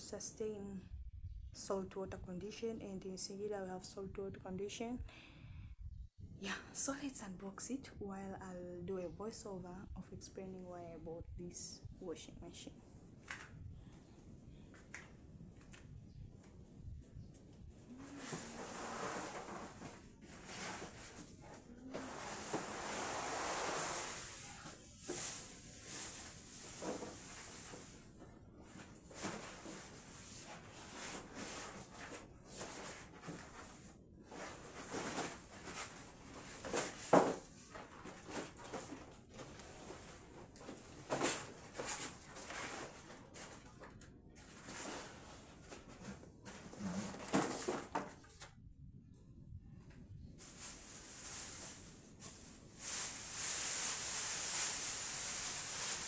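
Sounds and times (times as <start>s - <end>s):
plastic wrap and cardboard rustling: 17.4s - 48.6s, 50.4s - 56.0s.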